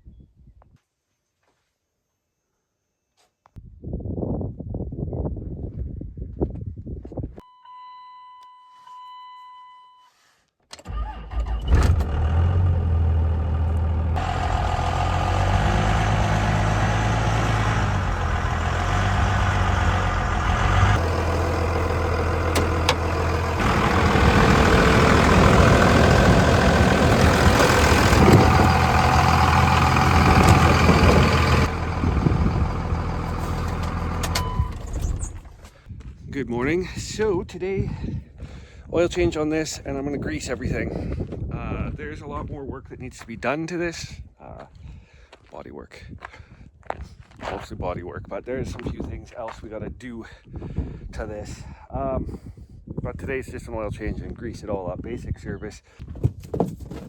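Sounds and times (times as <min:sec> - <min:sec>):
truck engine cranking and idling: 0:10.8 - 0:35.8.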